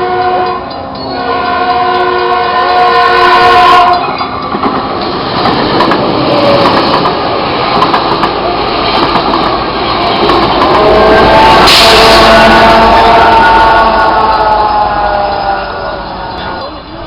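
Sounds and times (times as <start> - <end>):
train horn: 0.0 - 4.4, 10.6 - 16.9
train wheels rumbling on rails: 0.0 - 17.0.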